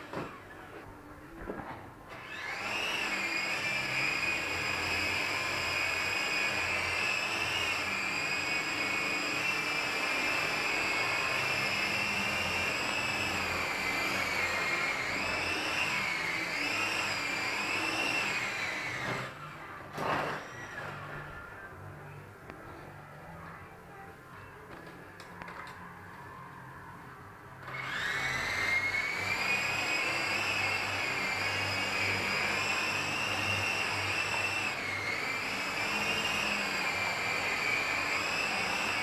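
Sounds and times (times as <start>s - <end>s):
toy helicopter motor whine: 2.1s - 21.7s, 27.6s - 39.0s.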